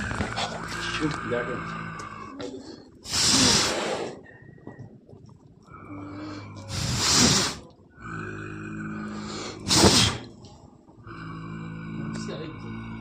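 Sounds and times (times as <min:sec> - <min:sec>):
leopard hissing and snarling: 0:00.0 - 0:04.3, 0:06.2 - 0:10.4.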